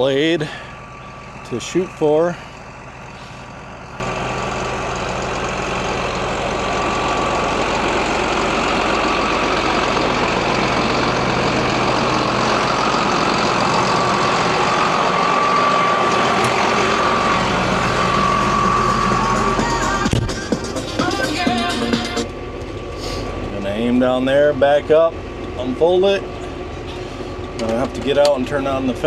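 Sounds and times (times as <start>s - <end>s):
diesel engine running: 0.0s - 29.0s
thin mechanical whine: 13.7s - 29.0s.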